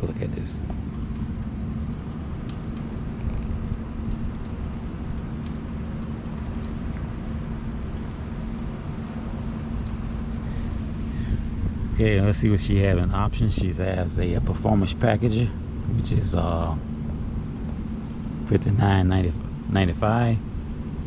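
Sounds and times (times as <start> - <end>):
faint steady hum: 0.0 - 21.0
light rain: 0.0 - 21.0
low rumble: 0.0 - 21.0
drop-like ticks: 0.6 - 11.2.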